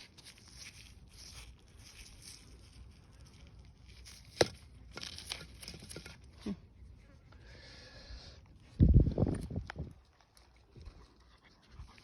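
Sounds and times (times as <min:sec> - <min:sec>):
stones rustling and scraping: 0:00.0 - 0:06.3.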